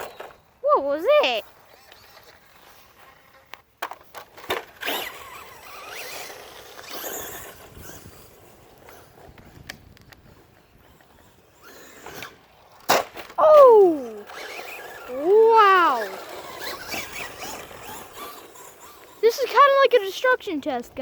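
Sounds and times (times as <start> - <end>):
tyre noise: 0.0 - 19.7
electric motor whining: 4.7 - 12.5, 13.4 - 19.8.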